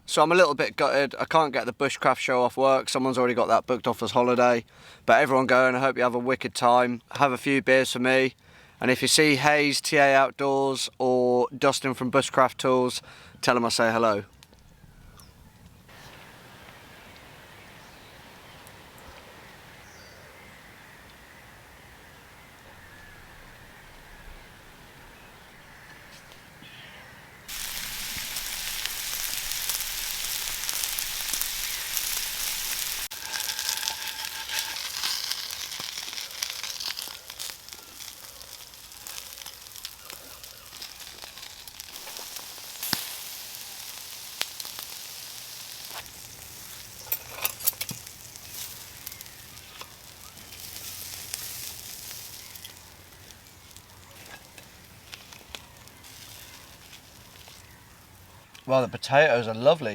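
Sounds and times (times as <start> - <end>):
food sizzling in a pan: 27.5 - 58.2
sharp pops: 41.8 - 44.9.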